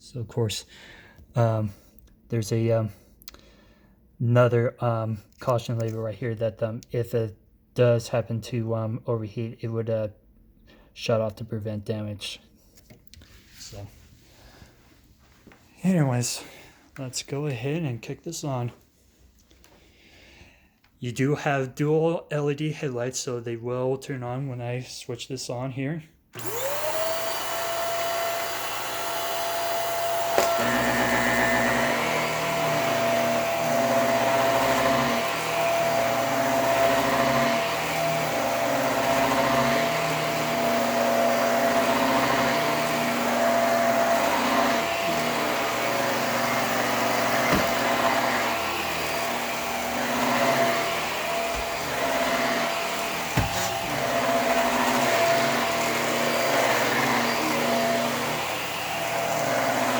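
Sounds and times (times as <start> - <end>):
vacuum cleaner motor running: 26.4 - 59.9.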